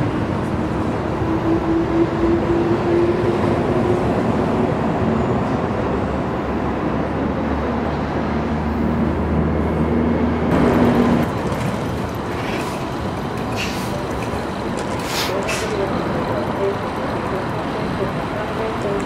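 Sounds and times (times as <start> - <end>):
road traffic: 0.0 - 19.0
vehicle approaching: 0.0 - 19.0
electric train running: 10.4 - 19.0.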